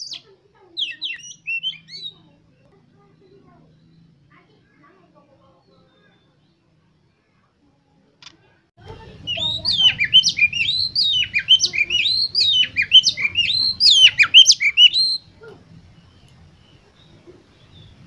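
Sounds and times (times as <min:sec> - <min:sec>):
bird singing whistled notes: 0:00.8 - 0:02.3, 0:09.3 - 0:15.3.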